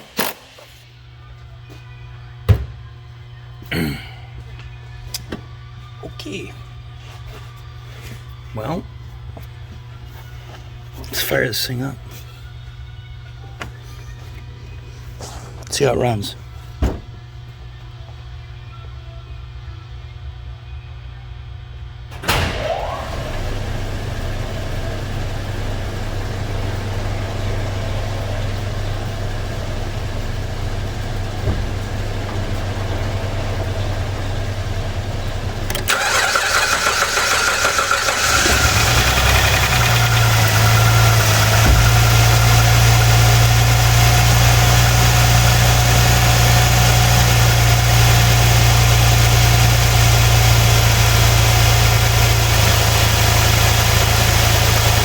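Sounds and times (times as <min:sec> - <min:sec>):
car engine starting and idling: 0:22.1 - 0:55.0.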